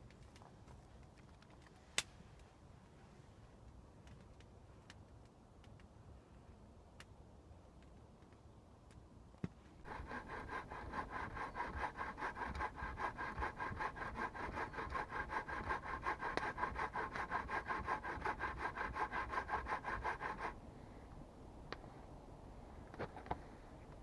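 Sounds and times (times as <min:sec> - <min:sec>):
hand saw cutting wood: 0:09.8 - 0:20.6.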